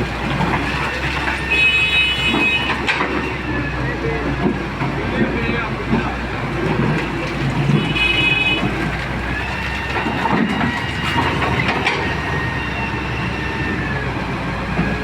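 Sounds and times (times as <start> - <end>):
excavator engine rumble: 0.0 - 15.0
high metallic squeals: 6.9 - 14.1.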